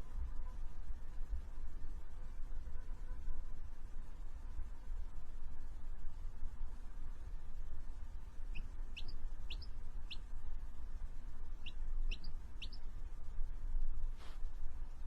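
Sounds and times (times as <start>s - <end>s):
steady low hum: 0.0s - 15.0s
small bird chirping: 8.4s - 10.3s, 11.6s - 12.9s.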